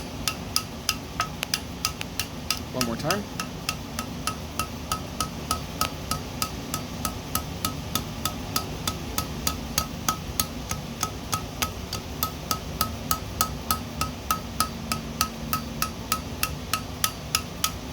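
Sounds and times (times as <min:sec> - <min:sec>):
hammer on hot steel: 0:00.0 - 0:17.9.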